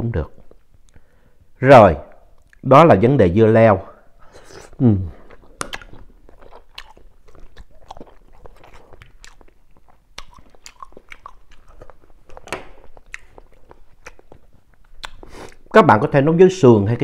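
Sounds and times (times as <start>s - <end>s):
mouth clicks and smacks: 2.1s - 2.7s, 4.4s - 15.7s
person chewing food: 4.2s - 15.7s.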